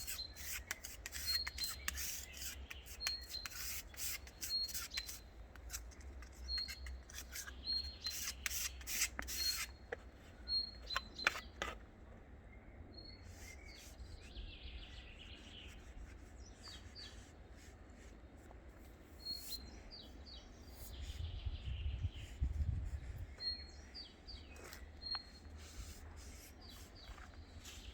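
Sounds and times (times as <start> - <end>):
rubbing or scraping strokes: 0.0 - 9.8, 25.3 - 27.9
bird chirping: 0.0 - 11.8, 12.4 - 17.7, 19.1 - 27.9.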